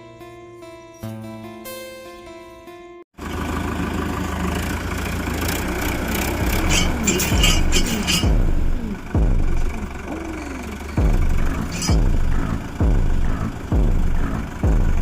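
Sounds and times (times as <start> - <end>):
plucked guitar music: 0.0 - 3.0
tractor engine under load: 3.2 - 15.0
rattling: 5.5 - 14.6
heavy low thumps: 7.3 - 10.1, 11.0 - 15.0.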